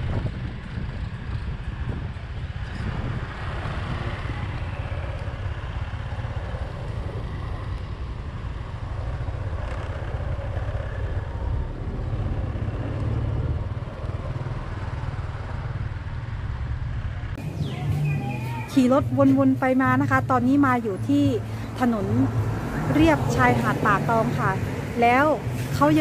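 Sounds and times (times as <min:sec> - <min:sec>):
wind rushing on microphone: 0:00.0 - 0:15.8
motorbike engine running: 0:00.0 - 0:26.0
street traffic: 0:00.0 - 0:26.0.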